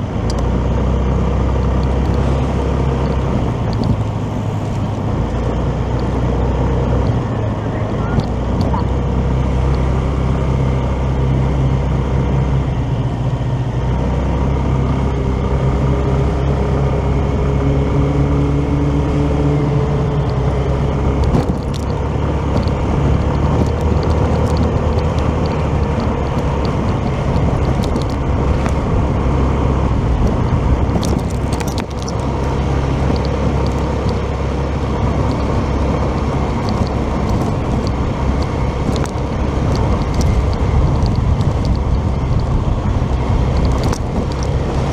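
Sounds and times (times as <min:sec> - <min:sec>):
motorcycle engine cruising: 0:00.0 - 0:44.9
road and wind noise: 0:00.0 - 0:44.9.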